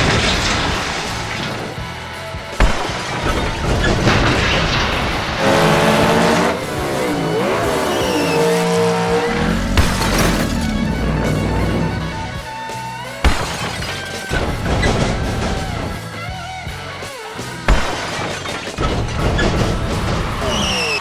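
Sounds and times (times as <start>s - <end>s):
background music: 1.0s - 18.8s
monster truck engine revving: 3.5s - 13.1s, 19.5s - 21.0s.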